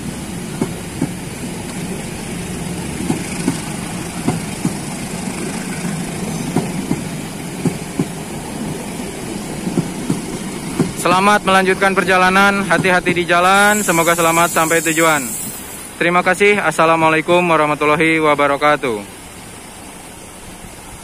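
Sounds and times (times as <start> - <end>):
train wheels clicking over rail joints: 0.0 - 15.8.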